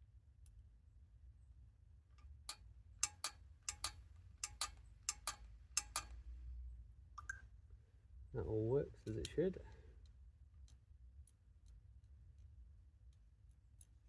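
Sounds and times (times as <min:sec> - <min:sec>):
sharp mechanical clicks: 0:03.0 - 0:06.2.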